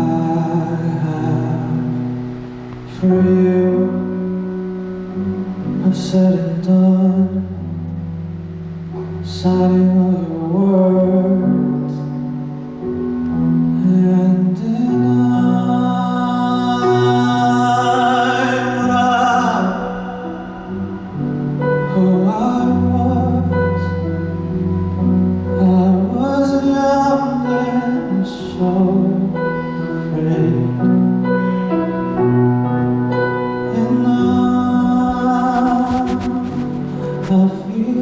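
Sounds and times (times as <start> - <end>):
man singing slow ballad: 0.0 - 2.2, 2.8 - 4.6, 5.7 - 7.9, 9.2 - 12.3, 13.6 - 24.3, 25.4 - 31.7, 33.3 - 36.4, 37.1 - 38.0
bass line: 34.8 - 37.7.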